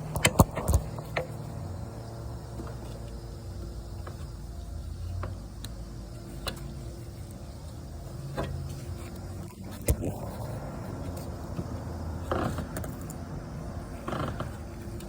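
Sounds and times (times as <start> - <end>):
steady low rumble: 9.5 - 12.4.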